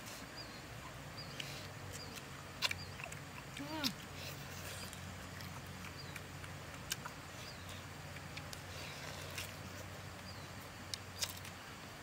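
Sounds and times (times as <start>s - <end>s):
steady low hum: 0.0s - 12.0s
mouth clicks and smacks chewing: 1.2s - 10.3s.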